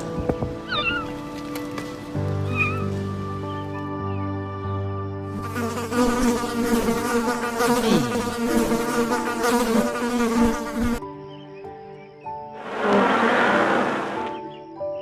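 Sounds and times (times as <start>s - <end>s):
insect buzzing: 0.0s - 3.8s, 5.4s - 11.0s, 12.5s - 14.5s.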